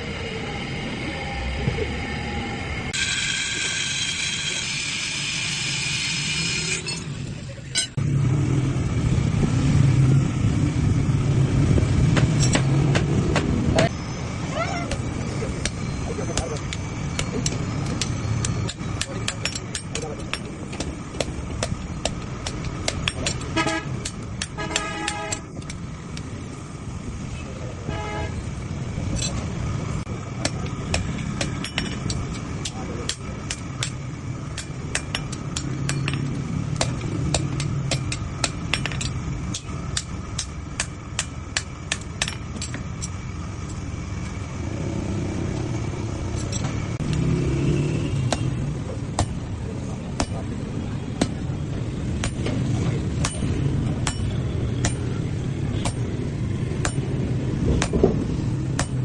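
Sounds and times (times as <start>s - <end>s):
steady low rumble: 7.1s - 47.2s, 48.1s - 59.0s
hammer striking metal on anvil: 16.4s - 25.8s, 30.4s - 43.2s, 48.3s - 48.6s, 49.2s - 49.4s, 50.2s - 50.5s, 52.2s - 55.2s, 55.8s - 58.1s, 58.8s - 59.0s.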